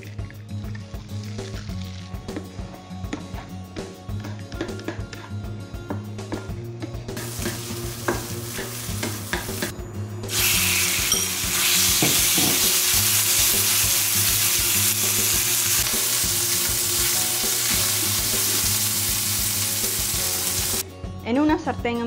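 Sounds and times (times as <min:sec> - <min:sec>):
chicken sizzling in hot oil: 0:07.2 - 0:09.7, 0:10.3 - 0:20.8.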